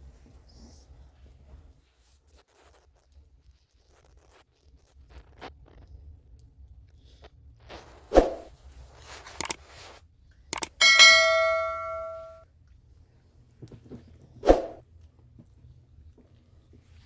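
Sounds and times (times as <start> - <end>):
sharp knocks: 10.6 - 12.4
metal object struck ringing: 10.7 - 12.4.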